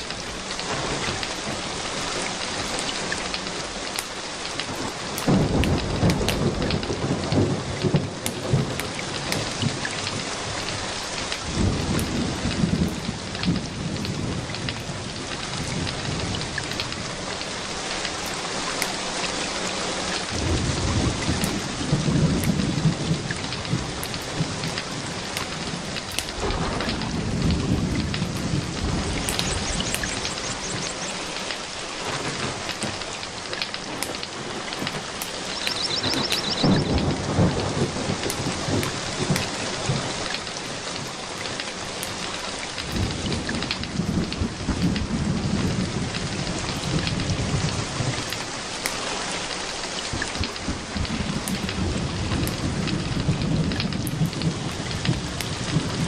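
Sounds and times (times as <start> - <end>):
steady rain: 0.0 - 56.0
thunder rolling: 20.3 - 31.3, 32.0 - 40.4, 42.8 - 48.3, 50.1 - 56.0.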